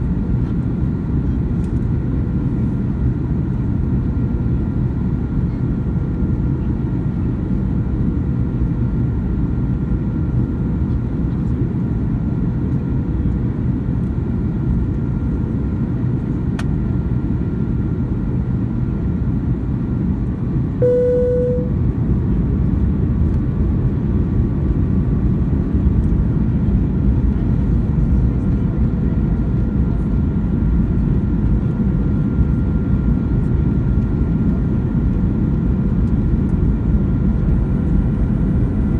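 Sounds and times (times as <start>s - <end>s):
aircraft cabin engine rumble: 0.0s - 38.9s
faint steady whine: 20.8s - 21.8s
short tone: 20.8s - 21.8s.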